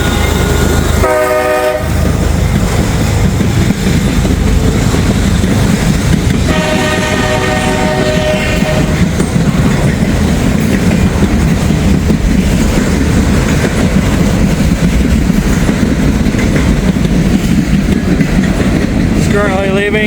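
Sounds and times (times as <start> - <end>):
locomotive air horn: 0.0 - 2.0, 6.5 - 9.1
train wheels rumbling on rail: 0.0 - 20.0.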